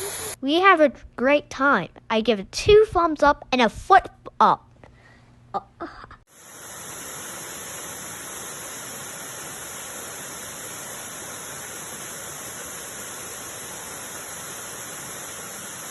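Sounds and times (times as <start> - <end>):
waterfall rushing: 6.4 - 15.9.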